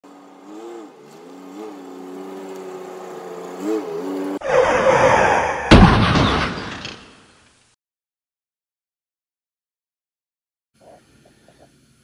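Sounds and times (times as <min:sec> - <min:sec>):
vehicle engine revving: 0:00.0 - 0:04.9
loud sharp slam: 0:05.6 - 0:07.2.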